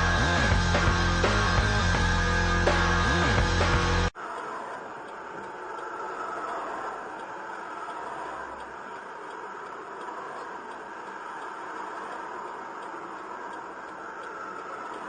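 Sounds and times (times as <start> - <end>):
faint ticks: 4.3 - 15.0.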